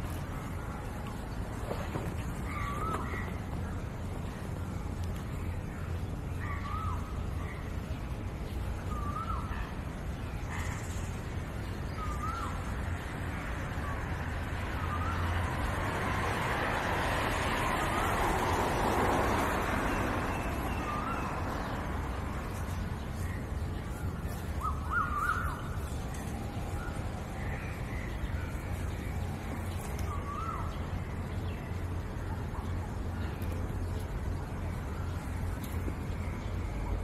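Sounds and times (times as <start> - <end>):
birds calling: 0.0 - 8.0, 8.7 - 12.8, 19.4 - 37.0
low outdoor hum: 0.0 - 37.0.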